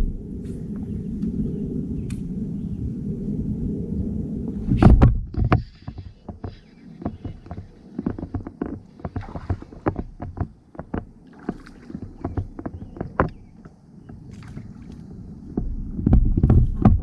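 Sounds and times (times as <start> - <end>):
heavy low thump: 4.7 - 6.0
plastic kayak and gear clunking: 4.8 - 14.7, 15.5 - 17.0.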